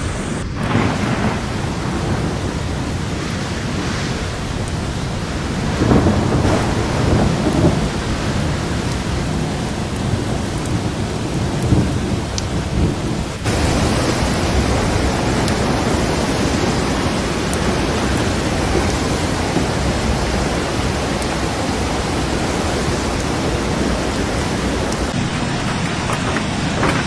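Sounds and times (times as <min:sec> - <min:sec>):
heavy rain: 0:00.0 - 0:27.0
low rumbling: 0:00.0 - 0:27.0
rushing floodwater: 0:00.0 - 0:27.0.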